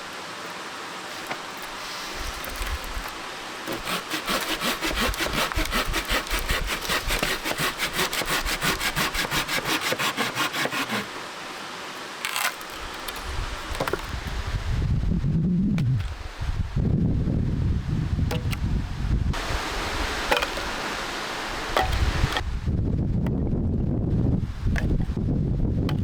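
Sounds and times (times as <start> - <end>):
short scrape: 1.1 - 2.9
hand saw cutting wood: 1.1 - 11.2.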